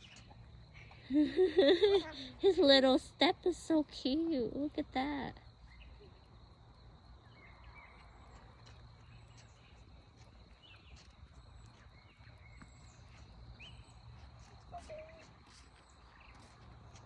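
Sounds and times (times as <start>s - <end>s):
bird chirps: 7.2s - 16.6s.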